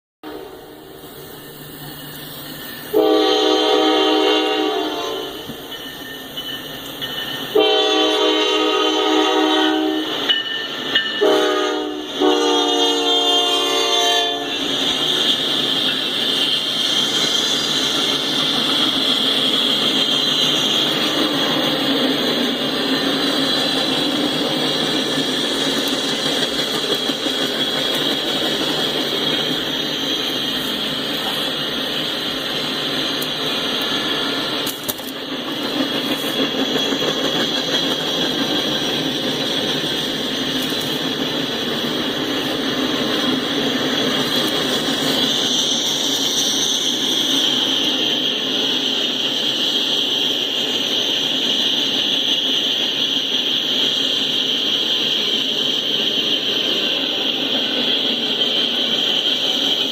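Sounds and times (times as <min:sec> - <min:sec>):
locomotive horn chord: 0:00.2 - 0:00.9, 0:02.9 - 0:05.4, 0:07.6 - 0:10.1, 0:11.2 - 0:14.6
train cars rolling on rails: 0:00.2 - 0:59.9.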